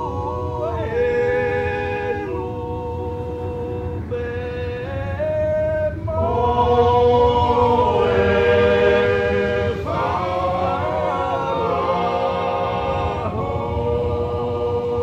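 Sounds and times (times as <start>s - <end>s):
choir singing sustained notes: 0.0s - 15.0s.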